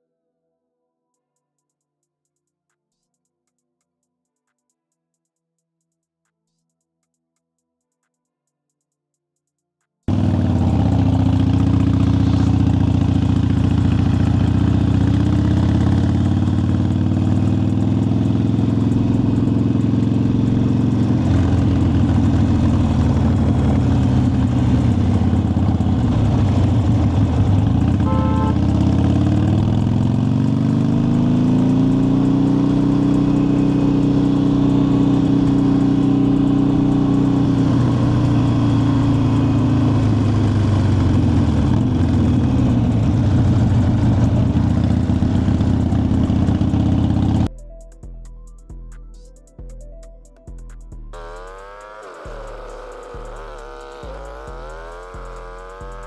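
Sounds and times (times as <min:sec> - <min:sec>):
motorcycle engine running: 0:10.1 - 0:47.5, 0:51.0 - 0:56.0.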